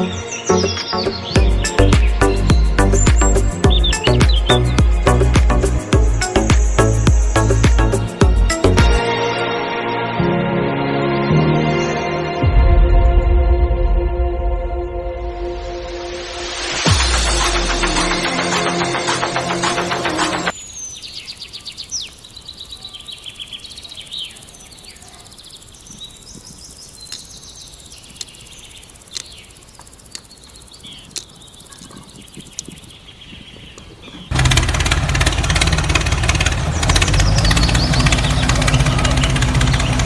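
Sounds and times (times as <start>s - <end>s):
birds chirping: 0.0s - 9.8s, 10.8s - 12.4s, 14.8s - 40.0s
loud engine running: 16.8s - 20.5s, 34.3s - 40.0s
sharp clicks: 27.0s - 32.9s.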